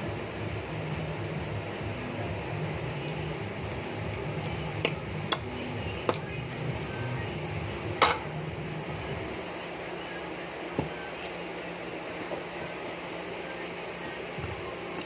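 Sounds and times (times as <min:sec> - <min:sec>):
steady low hum: 0:00.0 - 0:15.0
tableware clinking: 0:08.0 - 0:08.3.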